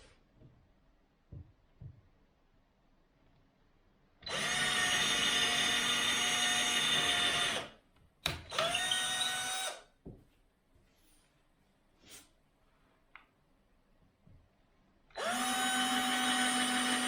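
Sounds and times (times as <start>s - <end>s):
power drill running: 4.3s - 7.8s, 8.5s - 9.8s, 15.2s - 17.0s.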